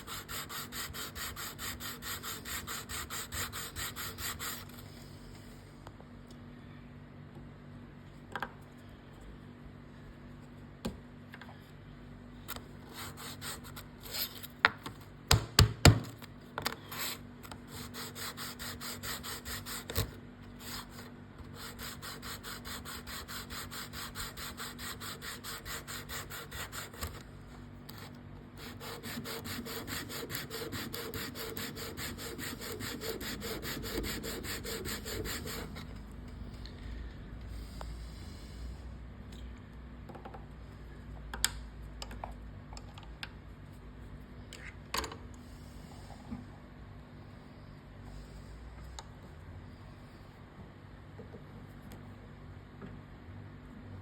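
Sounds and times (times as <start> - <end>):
bone rubbing on sandpaper: 28.6 - 35.9.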